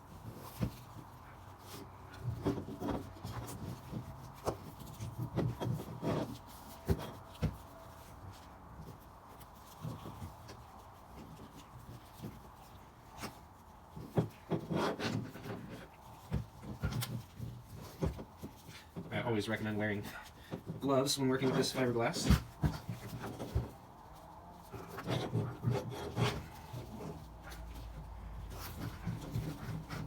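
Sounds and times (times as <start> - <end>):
wrap rubbing and scraping on pipe: 0.0 - 30.0.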